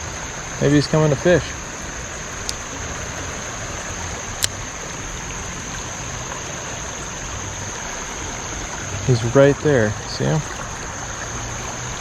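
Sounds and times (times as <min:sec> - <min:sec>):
creek water flowing: 0:00.0 - 0:12.0
sharp clicks: 0:02.4 - 0:02.6.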